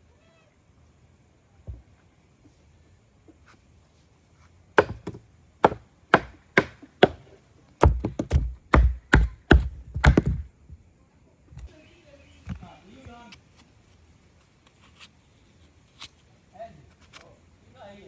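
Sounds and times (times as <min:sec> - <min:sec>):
blade chopping: 0:04.8 - 0:07.2, 0:07.8 - 0:10.4.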